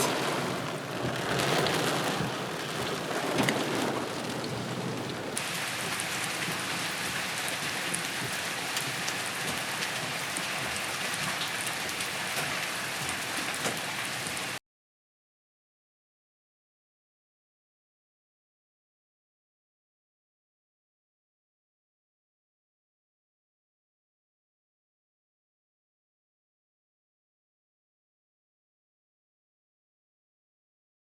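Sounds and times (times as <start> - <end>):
heavy rain hissing: 0.0 - 14.6
ticking raindrops: 0.0 - 14.6.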